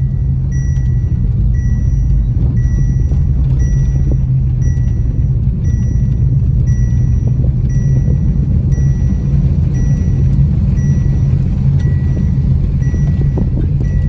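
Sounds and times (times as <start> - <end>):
automatic gearbox upshift: 0.0 - 14.0
car engine at light throttle: 0.0 - 14.0.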